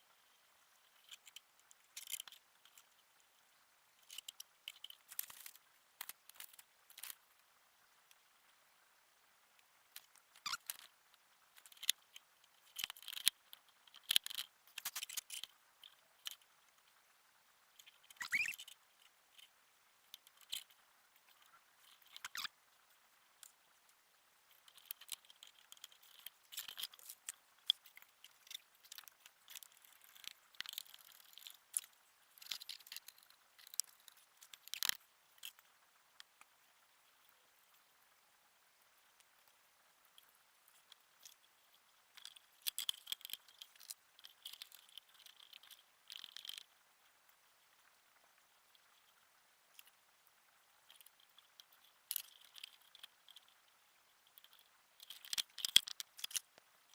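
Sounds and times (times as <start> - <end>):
objects handled by hand: 0.1 - 3.0, 3.9 - 7.4, 9.6 - 17.0, 17.7 - 37.8, 39.2 - 46.7, 50.8 - 56.9
short rising squeak: 18.2 - 18.6.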